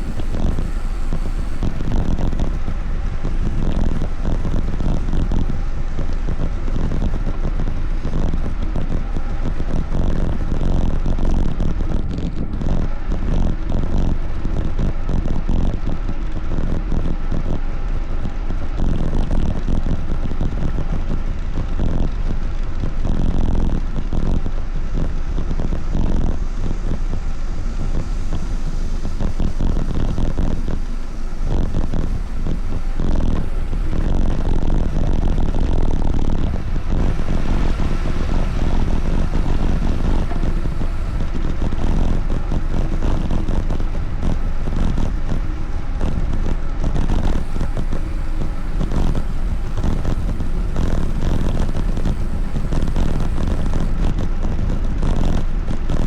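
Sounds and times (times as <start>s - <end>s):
wind buffeting microphone: 23.9s - 56.0s.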